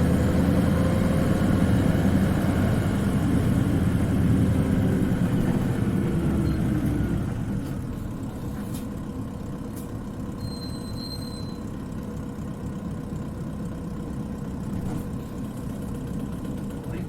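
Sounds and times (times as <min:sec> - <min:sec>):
bus diesel engine running: 0:00.0 - 0:17.0
high squeal: 0:10.4 - 0:11.7.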